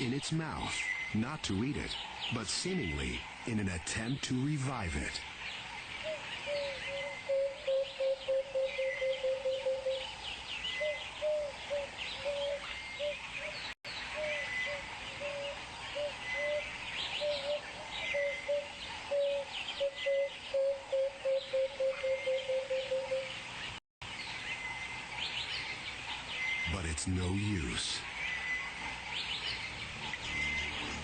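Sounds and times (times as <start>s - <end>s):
birds twittering chirps: 0.0s - 31.0s
bird low repeated call: 6.0s - 13.2s, 14.1s - 23.4s.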